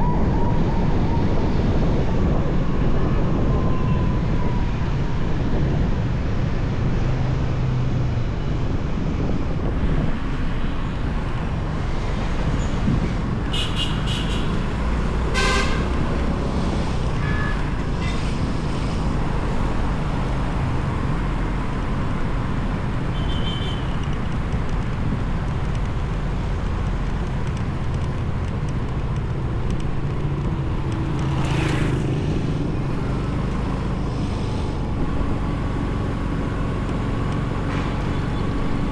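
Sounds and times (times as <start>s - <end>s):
motorbike engine and road noise: 0.0s - 38.9s
vehicle horn toots: 13.5s - 14.7s, 15.3s - 16.0s, 23.2s - 24.0s.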